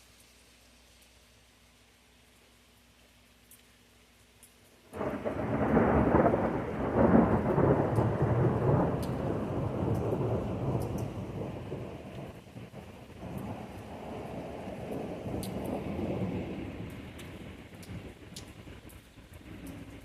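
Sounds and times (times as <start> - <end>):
thunder clap and rumble: 4.9 - 20.0.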